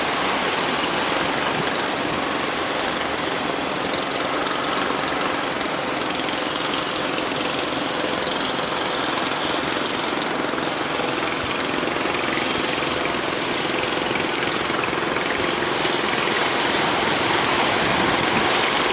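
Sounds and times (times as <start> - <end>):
big waves breaking: 0.0 - 18.9
faint low engine hum: 0.0 - 18.9.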